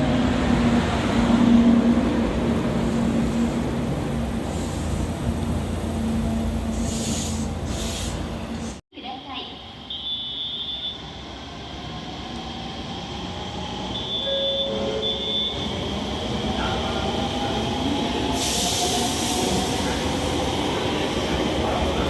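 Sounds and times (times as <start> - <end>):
train rumbling: 0.0 - 8.8, 11.0 - 22.0
hiss of escaping air: 6.7 - 8.8, 18.4 - 19.9.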